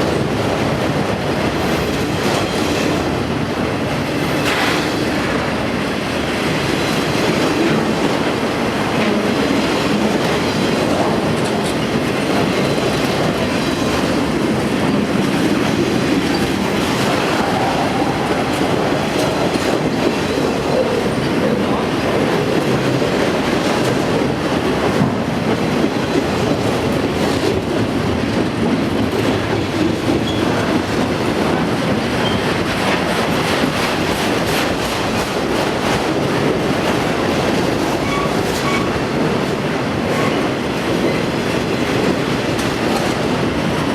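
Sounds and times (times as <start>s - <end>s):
rail joint clicks: 0.0s - 43.9s
train wheels on rail: 0.0s - 43.9s.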